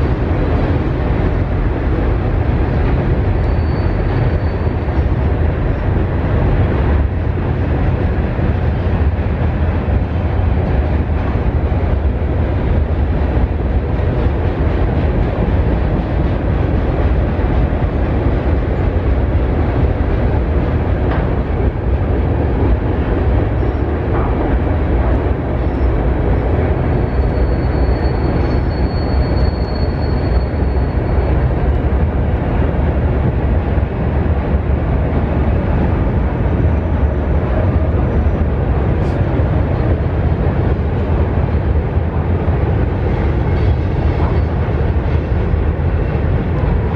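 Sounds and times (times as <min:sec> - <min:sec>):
freight train rumbling on rails: 0:00.0 - 0:46.9
faint high squeal: 0:03.4 - 0:04.8, 0:27.0 - 0:31.2.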